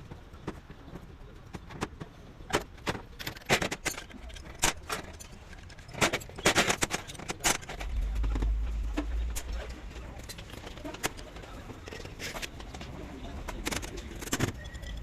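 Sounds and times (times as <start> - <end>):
low rumble: 7.6 - 11.9.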